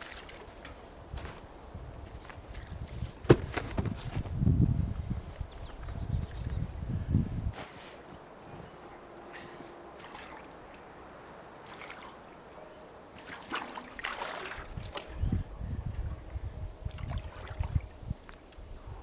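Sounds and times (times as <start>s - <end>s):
water sloshing and trickling: 0.0s - 1.5s, 8.0s - 19.0s.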